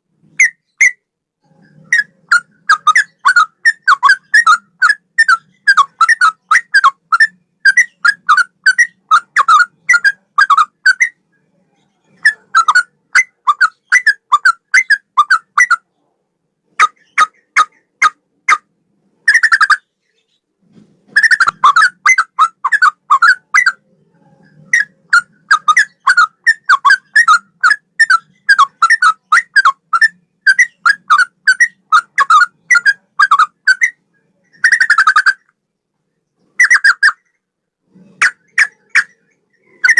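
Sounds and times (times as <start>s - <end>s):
bird singing whistled notes: 24.5s - 35.5s.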